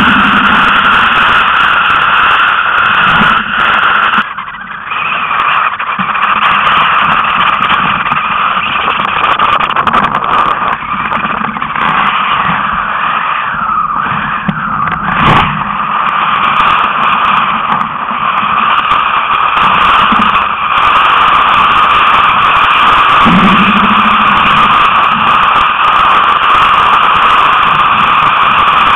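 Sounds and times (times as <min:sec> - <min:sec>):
rushing wind and water: 0:05.1 - 0:28.9.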